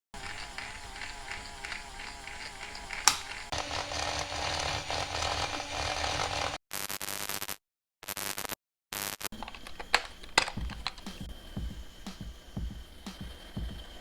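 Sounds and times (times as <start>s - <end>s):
small electric motor whining: 0.2s - 6.6s
steady low hum: 0.2s - 6.6s, 9.4s - 14.0s
sharp snap: 3.0s - 3.3s.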